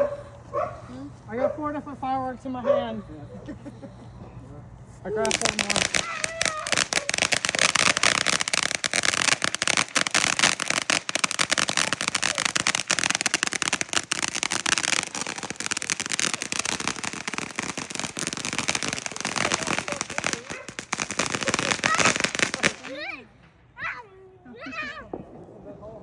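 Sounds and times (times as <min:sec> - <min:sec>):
fireworks crackling: 0:05.0 - 0:23.7.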